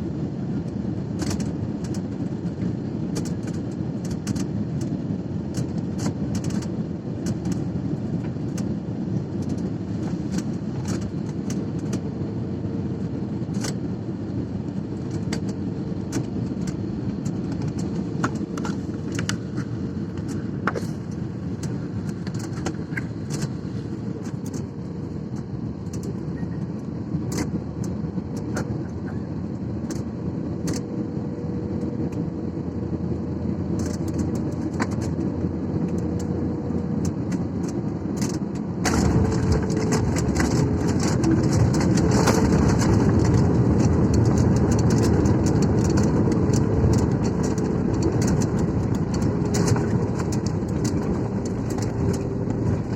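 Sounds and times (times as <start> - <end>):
jet engine and airflow rumble: 0.0 - 52.9
cabin rattles and clicks: 38.2 - 52.9.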